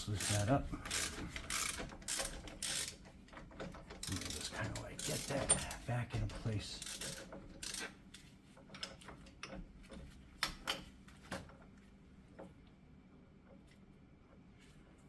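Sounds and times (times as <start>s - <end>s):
tools clicking and knocking: 0.2s - 8.0s, 8.6s - 11.5s.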